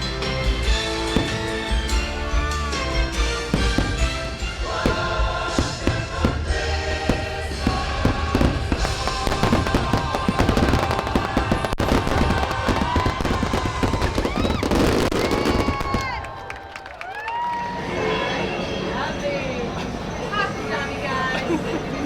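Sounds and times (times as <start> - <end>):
music: 0.0 - 14.0
fireworks crackling and bursting: 0.0 - 16.5
firework whistles: 7.0 - 16.1.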